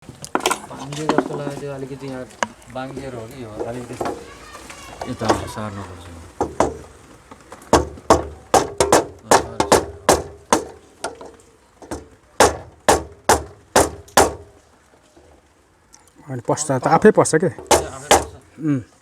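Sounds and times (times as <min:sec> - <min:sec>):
sharp knocks on metal: 0:06.4 - 0:06.9, 0:07.7 - 0:14.6, 0:17.6 - 0:18.4.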